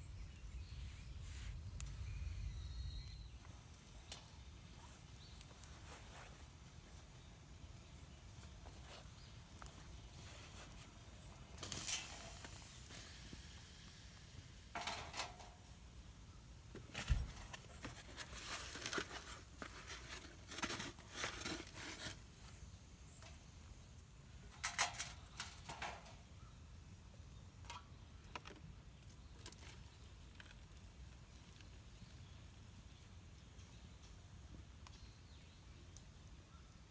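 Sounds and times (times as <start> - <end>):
faint steady hiss: 0.0 - 36.9
rustles and clicks of handling: 4.1 - 7.3, 8.3 - 13.0, 16.7 - 23.5.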